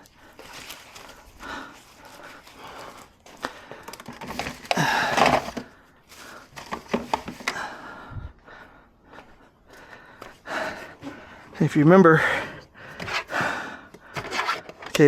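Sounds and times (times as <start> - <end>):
clicks and knocks of small items: 3.4 - 5.7, 6.5 - 7.6.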